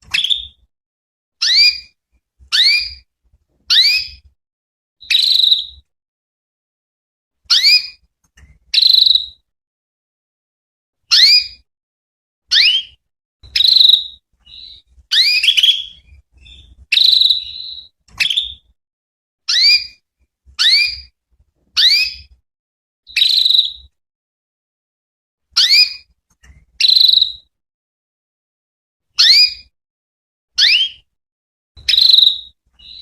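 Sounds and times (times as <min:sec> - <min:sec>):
canary chirping: 0:00.0 - 0:00.6, 0:01.4 - 0:03.1, 0:03.7 - 0:04.3, 0:05.0 - 0:05.8, 0:07.5 - 0:08.0, 0:08.7 - 0:09.4, 0:11.1 - 0:11.6, 0:12.5 - 0:18.7, 0:19.5 - 0:20.0, 0:20.6 - 0:21.1, 0:21.8 - 0:22.4, 0:23.1 - 0:23.9, 0:25.6 - 0:26.1, 0:26.8 - 0:27.5, 0:29.2 - 0:29.7, 0:30.6 - 0:31.1, 0:31.8 - 0:33.0.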